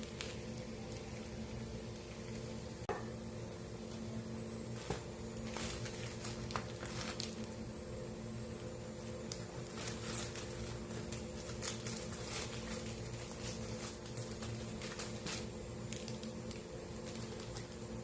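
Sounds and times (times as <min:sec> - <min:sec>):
bacon sizzling and popping in a pan: 0:00.0 - 0:03.2, 0:04.8 - 0:07.7.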